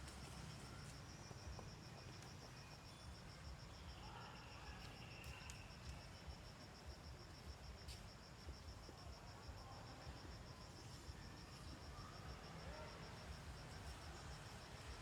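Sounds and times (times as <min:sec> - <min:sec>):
faint insect chirping: 0:00.0 - 0:15.0.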